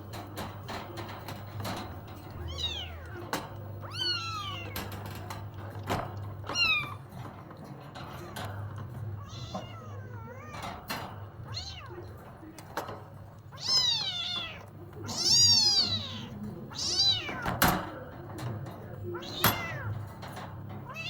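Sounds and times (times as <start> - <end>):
light clicks and knocks: 0.0 - 21.0
cat meowing: 2.4 - 5.0, 6.5 - 7.0, 9.2 - 10.8, 11.5 - 12.1, 13.5 - 17.6, 19.2 - 20.0.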